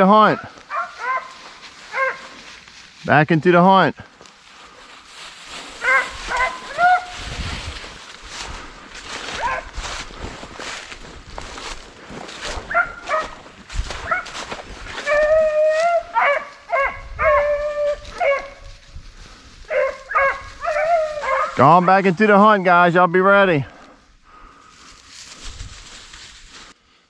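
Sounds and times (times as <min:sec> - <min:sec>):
hounds yelping: 0:00.2 - 0:02.5, 0:05.6 - 0:07.3, 0:09.1 - 0:10.0, 0:12.3 - 0:22.8
hounds howling: 0:00.3 - 0:02.5, 0:05.8 - 0:07.3, 0:09.1 - 0:10.0, 0:12.4 - 0:18.8, 0:19.6 - 0:22.2.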